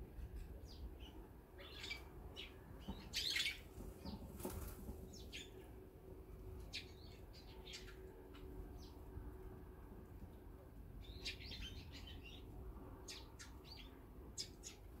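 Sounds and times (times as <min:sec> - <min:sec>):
small birds chirping: 0:00.4 - 0:05.8, 0:06.6 - 0:09.1, 0:10.9 - 0:15.0
wings fluttering: 0:03.7 - 0:05.2.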